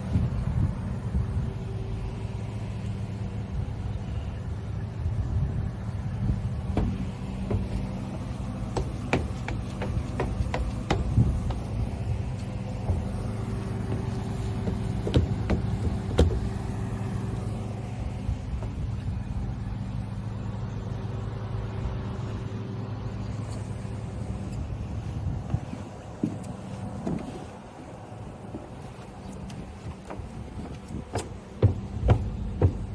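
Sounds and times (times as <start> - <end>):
boat engine running: 6.0 - 21.2, 24.8 - 32.9
sharp clicks and knocks: 6.7 - 16.8, 29.5 - 32.9.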